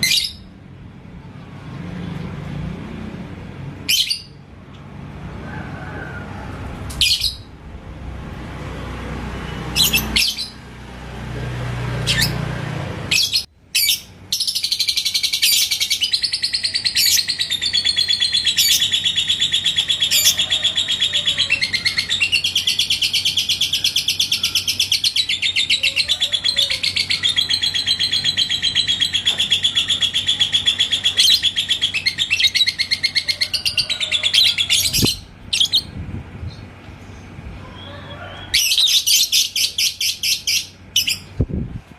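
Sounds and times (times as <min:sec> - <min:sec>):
low rumble: 0:06.3 - 0:09.2
bird chirps: 0:07.0 - 0:07.5, 0:09.5 - 0:10.6, 0:13.1 - 0:35.9
bird chattering trill: 0:13.1 - 0:35.9.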